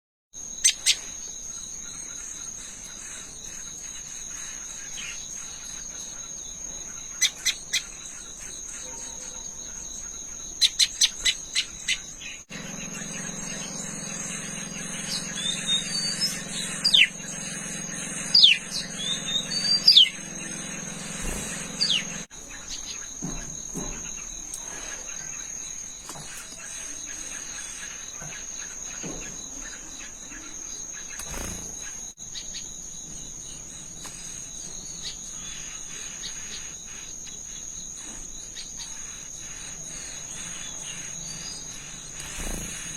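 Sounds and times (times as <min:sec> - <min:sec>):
high insect drone: 0:00.4 - 0:42.9
small birds chirping: 0:00.4 - 0:42.9
downward sliding whistled calls: 0:10.6 - 0:23.0
low hum: 0:12.5 - 0:22.3.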